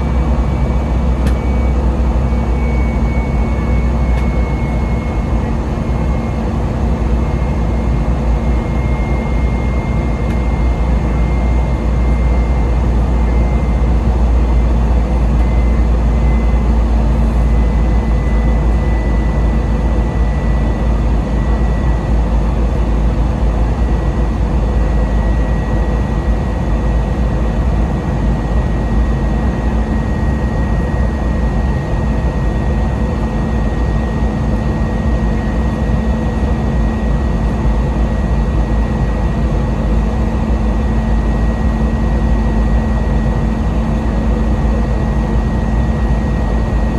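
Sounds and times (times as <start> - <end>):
high engine tone: 0.0 - 22.6
jet cabin low rumble: 0.0 - 46.9.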